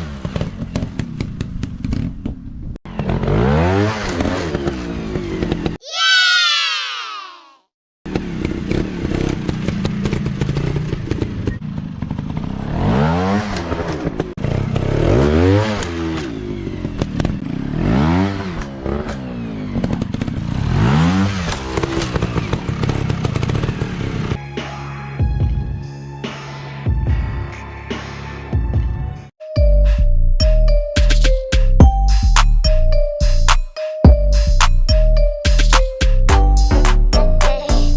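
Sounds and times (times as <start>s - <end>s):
dirt bike engines revving: 8.1s - 24.4s.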